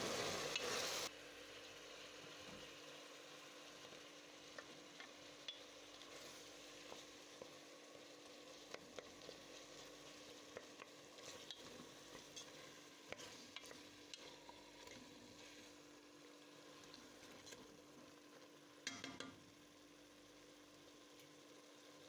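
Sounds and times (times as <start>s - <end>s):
food sizzling in a pot: 0.0s - 22.0s
wooden spoon knocking on a pot: 18.8s - 19.4s.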